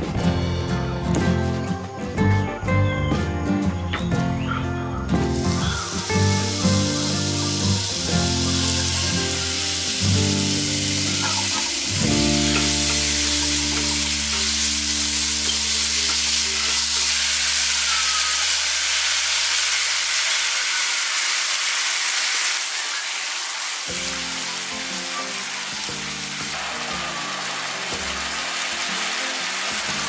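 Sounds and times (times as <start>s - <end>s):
background music: 0.0s - 17.8s, 23.9s - 30.0s
meat and vegetables sizzling: 5.0s - 30.0s.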